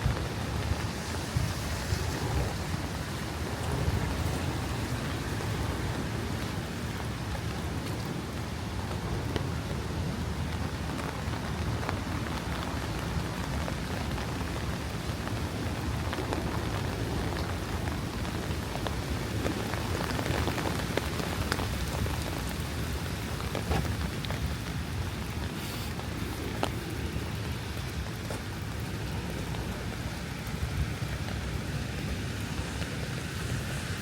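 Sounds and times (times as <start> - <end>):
constant low rumble: 0.0 - 34.0
rain falling: 0.0 - 34.0.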